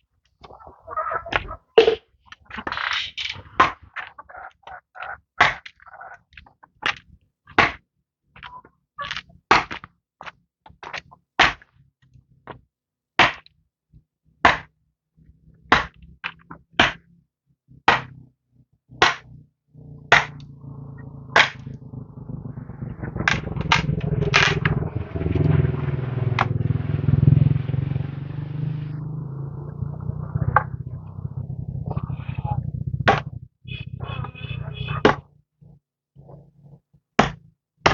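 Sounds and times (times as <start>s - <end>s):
low engine hum: 20.1s - 35.0s.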